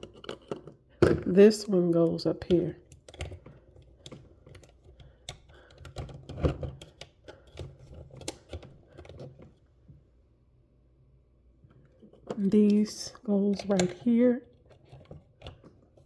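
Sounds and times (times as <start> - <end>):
plastic toy parts clicking: 13.5 - 15.7.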